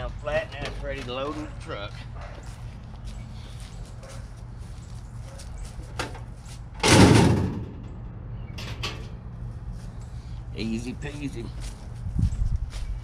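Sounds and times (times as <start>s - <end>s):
sheet metal clattering crash: 6.8s - 7.8s.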